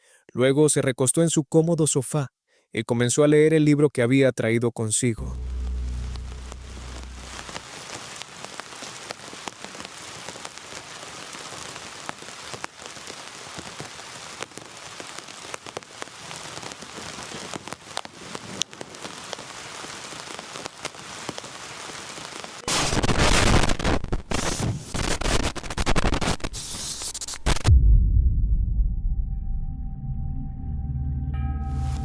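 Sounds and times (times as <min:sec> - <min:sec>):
loud rough noise: 0:05.2 - 0:07.8
rain pattering on tent fabric: 0:05.2 - 0:27.7
sharp raindrop ticks: 0:05.6 - 0:24.4.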